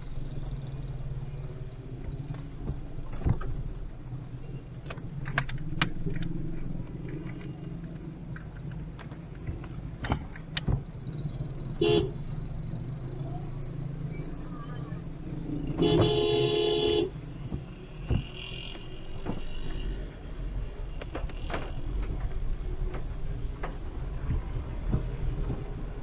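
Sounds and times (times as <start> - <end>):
car engine and road drone: 0.0 - 26.0.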